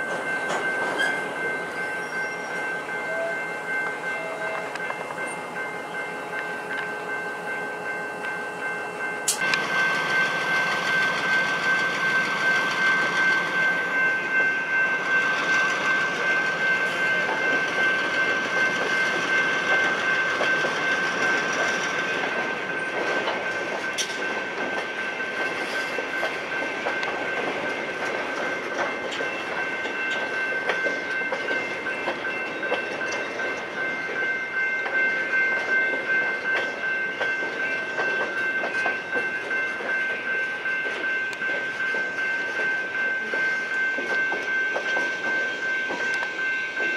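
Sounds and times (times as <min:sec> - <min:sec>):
high-pitched ringing tone: 0:00.0 - 0:23.0
train wheels over rail joints: 0:00.0 - 0:46.9.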